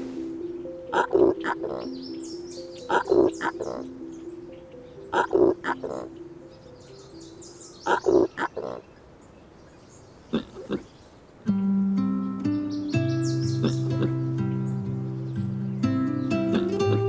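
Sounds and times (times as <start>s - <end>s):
plucked guitar music: 0.0s - 7.4s, 11.5s - 17.0s
soft background music: 0.0s - 8.6s, 11.5s - 17.0s.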